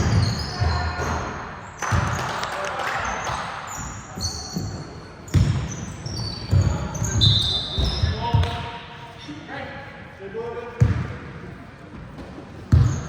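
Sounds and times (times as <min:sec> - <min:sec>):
basketball bouncing on hard floor: 0:05.3 - 0:05.7, 0:12.7 - 0:13.0.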